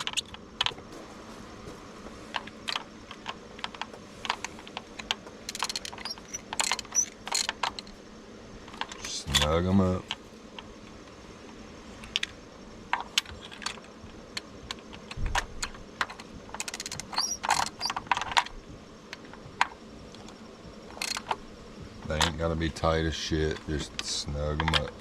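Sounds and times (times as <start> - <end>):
hand ratchet clicking: 2.4 - 7.9.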